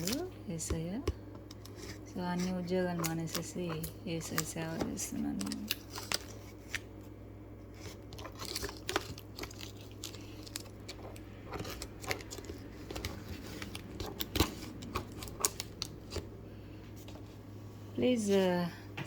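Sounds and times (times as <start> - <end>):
steady low hum: 0.0 - 19.0
packaging crinkling and clicking: 2.9 - 6.9, 7.8 - 16.3.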